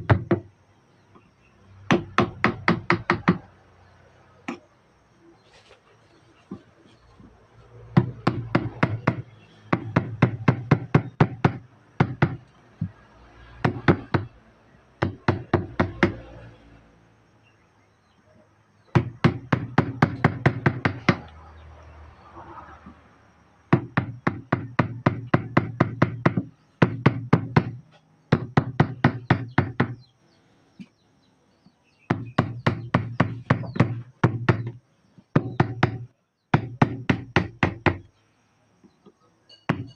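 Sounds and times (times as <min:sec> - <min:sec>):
mallet tapping chisel into wood: 0:35.4 - 0:38.0.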